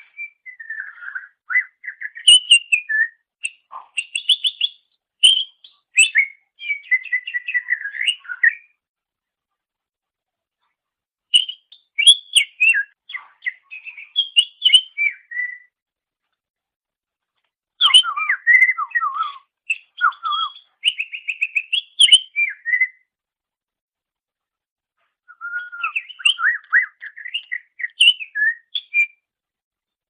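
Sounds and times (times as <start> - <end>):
bird singing whistles and chirps: 0.0 - 8.8, 11.3 - 15.8, 17.8 - 23.1, 25.3 - 29.3.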